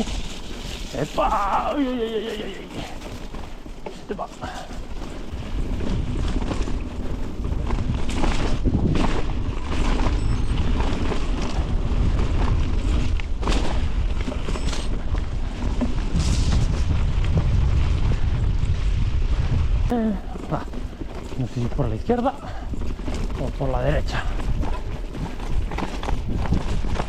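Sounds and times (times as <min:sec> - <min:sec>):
bike tyre noise: 0:00.0 - 0:27.0
bike knocks and clatters: 0:02.8 - 0:17.8, 0:20.5 - 0:27.0
wind buffeting microphone: 0:04.4 - 0:27.0.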